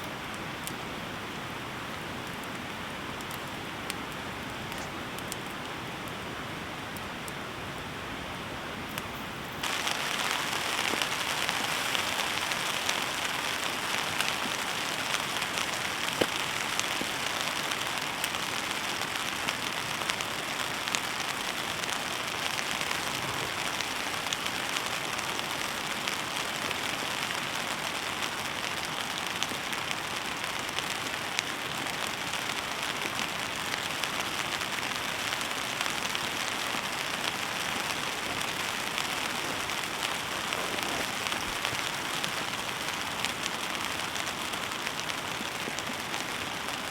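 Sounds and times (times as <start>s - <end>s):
heavy rain on tent fabric: 0.0s - 46.9s
raindrop ticks: 8.9s - 46.9s.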